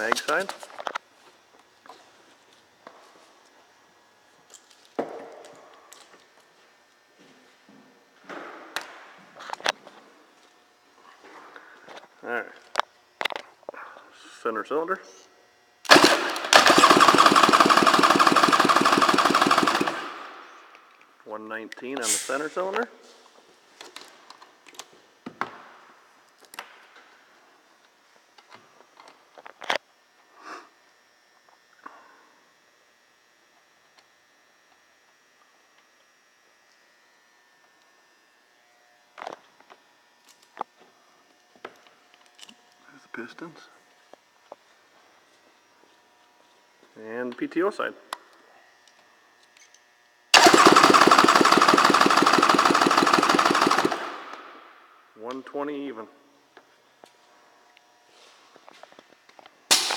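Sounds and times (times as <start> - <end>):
engine cranking by starter: 15.9 - 20.4, 50.4 - 54.4.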